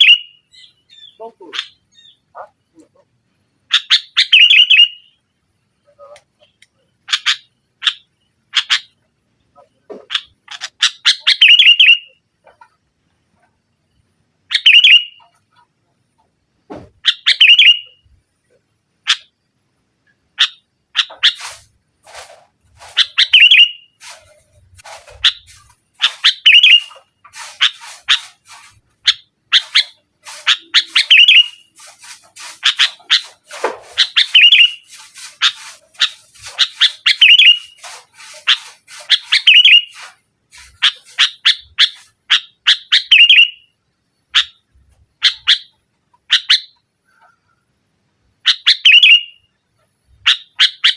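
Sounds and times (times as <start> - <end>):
bulbul chattering calls: 20.4 - 43.6.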